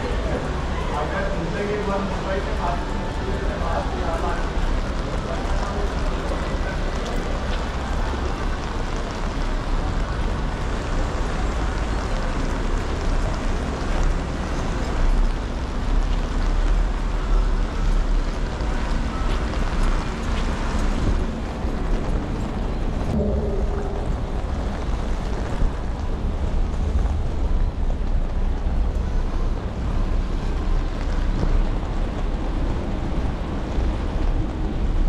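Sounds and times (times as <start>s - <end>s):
rain hissing on wet paving: 0.0s - 35.0s
low rumble: 21.0s - 30.5s.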